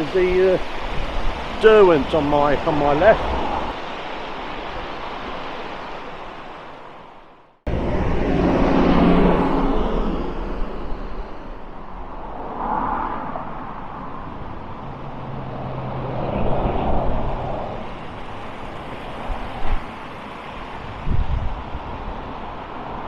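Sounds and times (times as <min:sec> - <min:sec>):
cars passing: 0:07.7 - 0:23.0.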